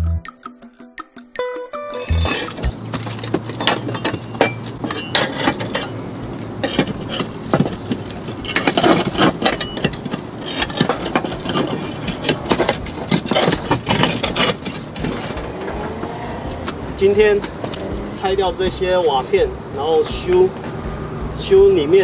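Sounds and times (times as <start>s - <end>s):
roof tiles clinking: 1.8s - 20.8s
scraping: 2.0s - 20.8s
tools knocking: 2.1s - 19.6s.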